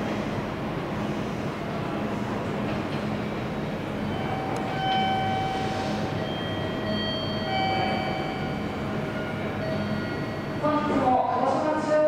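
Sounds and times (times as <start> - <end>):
high-pitched train tones: 4.0 - 12.0.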